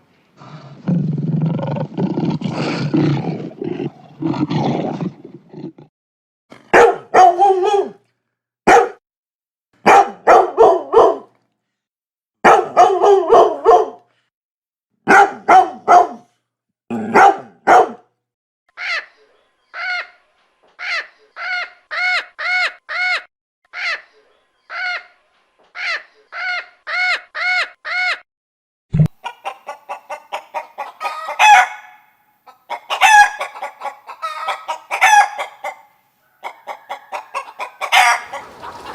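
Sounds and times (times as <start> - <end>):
chickens clucking: 29.0 - 31.9, 32.5 - 38.9.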